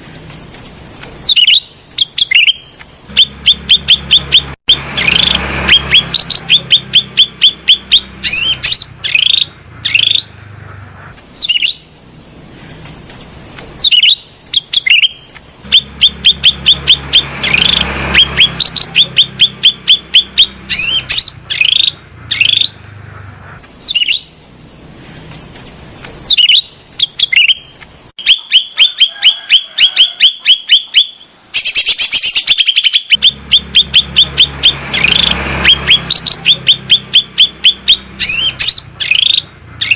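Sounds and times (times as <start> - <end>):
songbird chirping: 1.0 - 39.9.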